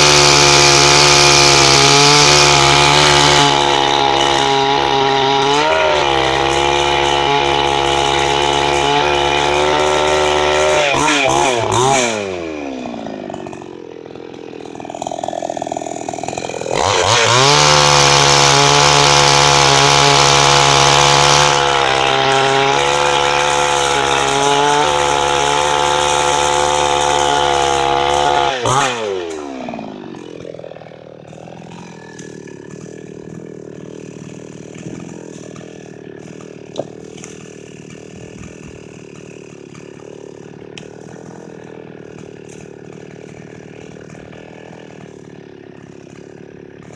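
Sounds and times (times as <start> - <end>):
chainsaw cutting wood: 0.0 - 46.9.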